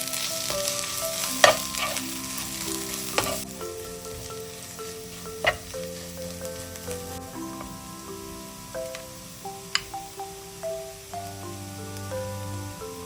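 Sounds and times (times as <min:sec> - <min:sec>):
food sizzling in a pan: 0:00.0 - 0:13.0
light background music: 0:00.0 - 0:13.0
spoon knocking against pan: 0:05.4 - 0:05.8.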